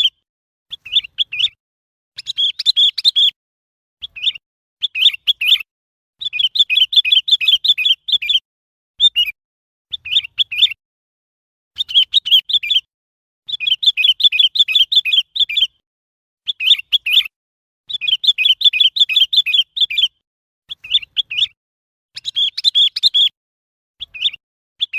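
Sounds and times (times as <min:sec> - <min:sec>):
bird chirping: 0:00.0 - 0:01.6, 0:02.2 - 0:03.4, 0:04.0 - 0:08.4, 0:09.0 - 0:10.8, 0:11.7 - 0:12.9, 0:13.5 - 0:15.8, 0:16.4 - 0:17.3, 0:17.9 - 0:23.4, 0:24.0 - 0:24.9.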